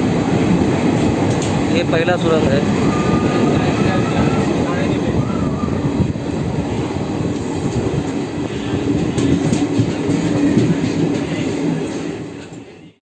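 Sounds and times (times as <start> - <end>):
train rumbling: 0.0 - 13.0
wheels clicking over rail joints: 0.5 - 1.7.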